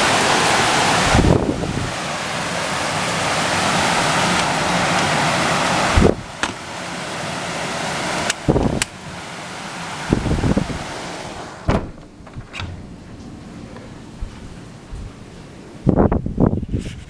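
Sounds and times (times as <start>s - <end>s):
wind buffeting microphone: 0.0s - 6.7s, 7.9s - 9.2s, 10.0s - 17.0s
floodwater rushing: 0.0s - 11.8s.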